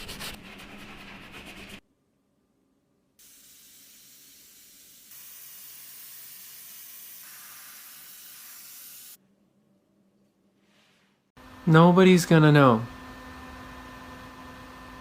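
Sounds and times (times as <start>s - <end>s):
spraying hiss: 3.2s - 9.2s.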